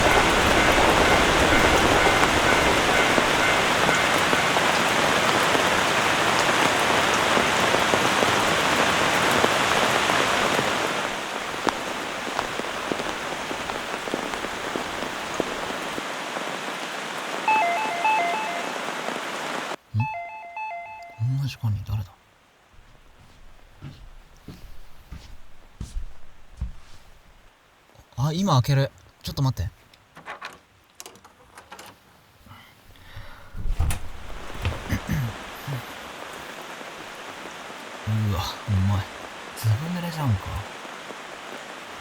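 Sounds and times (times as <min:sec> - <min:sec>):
two-note electronic door chime: 0:00.0 - 0:04.8, 0:17.5 - 0:18.9, 0:20.0 - 0:21.3
heavy rain falling: 0:00.0 - 0:21.0, 0:32.8 - 0:42.0.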